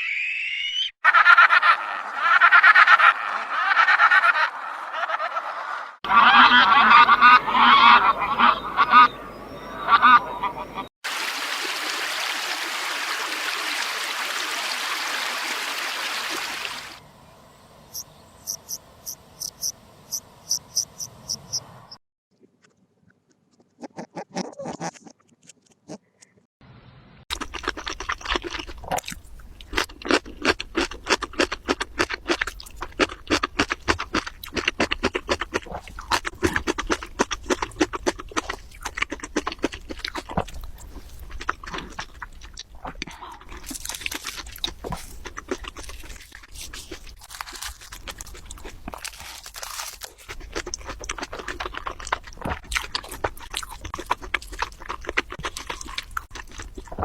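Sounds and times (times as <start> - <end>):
animal crunching food: 27.3 - 57.0.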